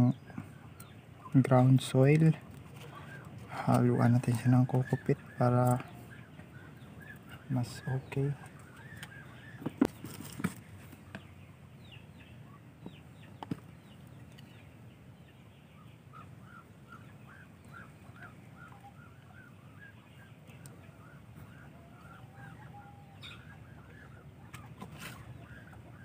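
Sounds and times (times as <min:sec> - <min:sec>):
faint bird chirping: 0:00.0 - 0:26.0
low steady hum: 0:00.0 - 0:26.0
quiet knocks: 0:09.6 - 0:11.2.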